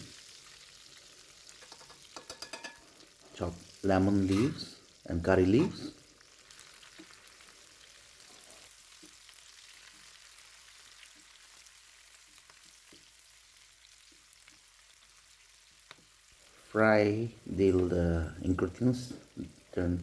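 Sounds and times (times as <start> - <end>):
food sizzling in a frying pan: 0.0 - 20.0.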